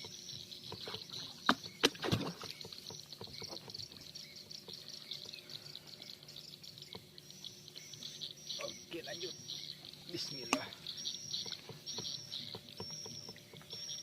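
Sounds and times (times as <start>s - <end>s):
insects chirping: 0.0s - 14.0s
water splash: 1.5s - 2.6s.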